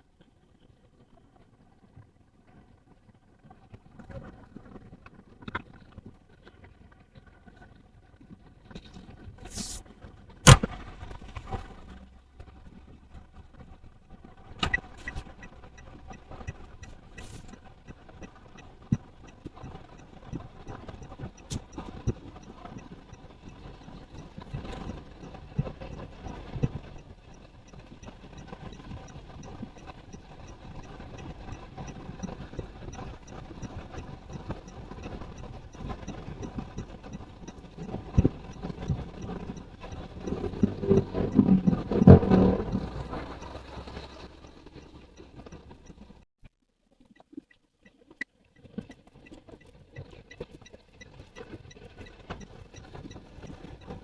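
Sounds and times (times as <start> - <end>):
car engine and road noise: 6.7 - 46.3, 48.9 - 54.0
faint regular ticking: 10.4 - 46.3, 47.2 - 54.0
low rumble: 30.8 - 46.2
knocks over bumps: 35.9 - 46.2.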